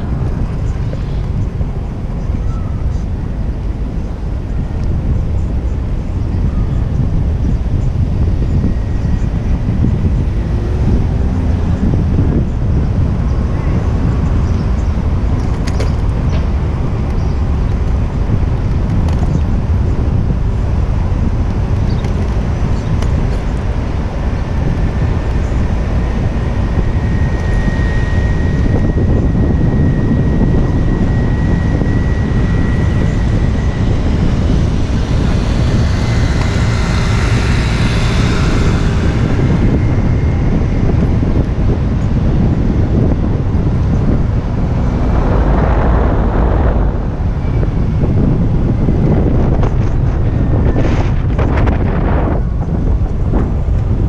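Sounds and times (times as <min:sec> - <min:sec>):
city street traffic: 0:00.0 - 0:30.7
wind buffeting microphone: 0:00.0 - 0:54.0
rushing noise: 0:42.9 - 0:49.6.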